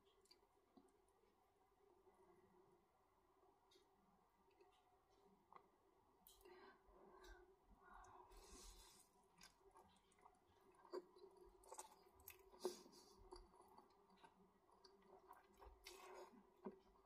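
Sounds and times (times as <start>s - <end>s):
wet chewing of noodles: 8.0s - 17.0s.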